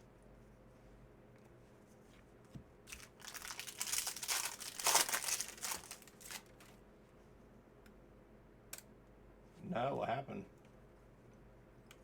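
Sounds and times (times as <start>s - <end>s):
plastic wrapper tearing and crinkling: 2.9s - 6.7s.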